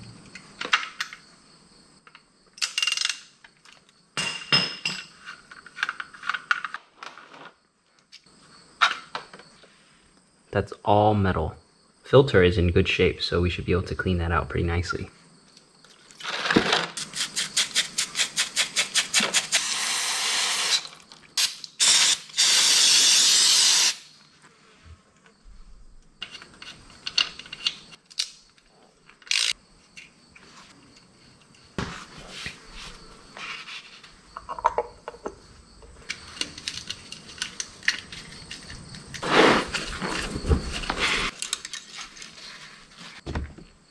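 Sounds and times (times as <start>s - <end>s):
aerosol spray hissing: 17.0s - 24.1s.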